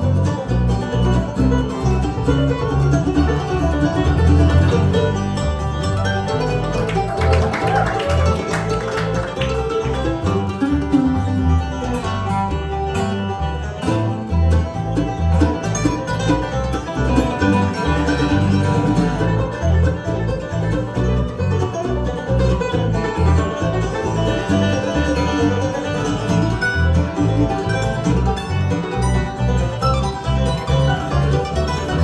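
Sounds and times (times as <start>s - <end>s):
banjo picking: 0.0s - 32.0s
guitar picking: 0.0s - 32.0s
upright bass beat: 0.0s - 32.0s.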